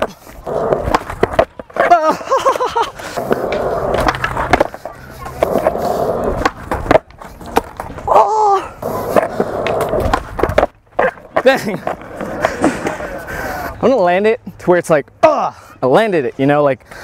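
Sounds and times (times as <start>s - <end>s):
skateboard wheels rolling on concrete: 0.0s - 15.0s
skateboard clacks: 0.4s - 8.1s, 9.0s - 13.1s.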